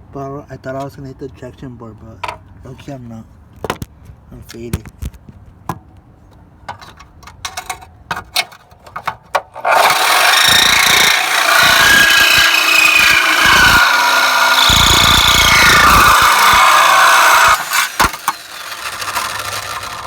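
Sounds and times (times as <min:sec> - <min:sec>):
electric saw cutting: 0:09.6 - 0:20.0.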